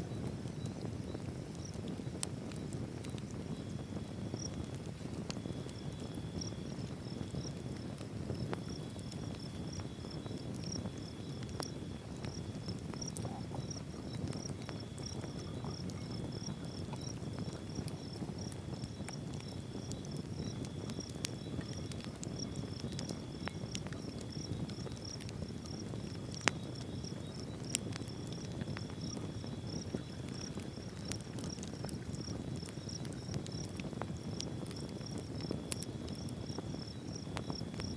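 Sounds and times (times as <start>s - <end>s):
insects chirping: 3.5s - 4.7s, 5.4s - 7.6s, 8.3s - 33.7s.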